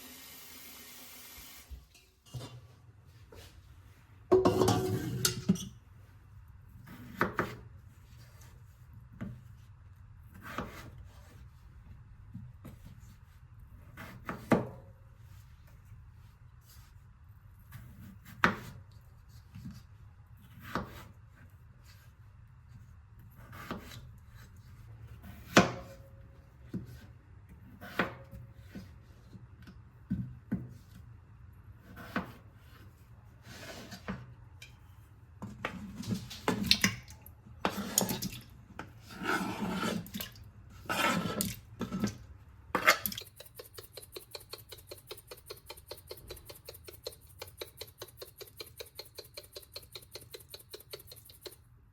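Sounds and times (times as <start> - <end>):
dishes and utensils clinking: 4.3 - 5.7.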